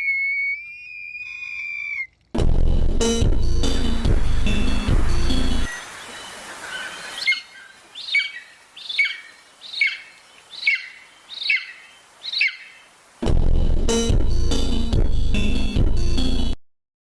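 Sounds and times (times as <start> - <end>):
eagle calling: 0.0 - 2.2, 5.7 - 13.0
loud music: 2.4 - 5.8.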